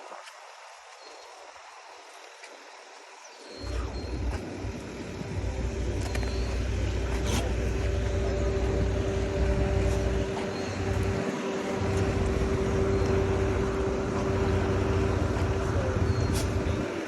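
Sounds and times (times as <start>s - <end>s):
vehicle engine running: 3.6s - 17.0s.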